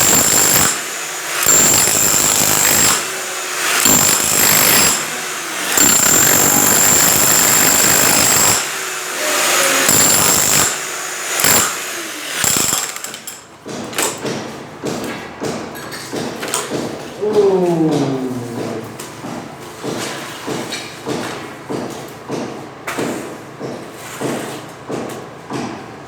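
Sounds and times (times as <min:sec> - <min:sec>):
jackhammer running with whine: 0:00.0 - 0:13.4.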